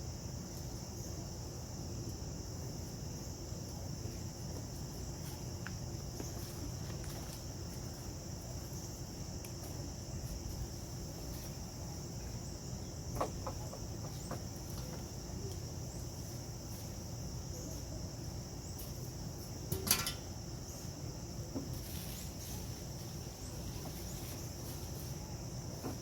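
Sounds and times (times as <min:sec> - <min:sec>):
insects chirring: 0:00.0 - 0:26.0
faint knocks: 0:13.1 - 0:15.1.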